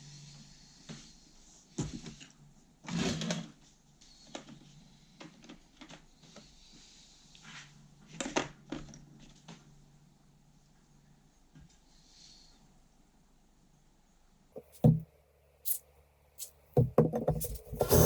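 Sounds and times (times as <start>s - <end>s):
knocks and clatters: 16.8s - 18.0s.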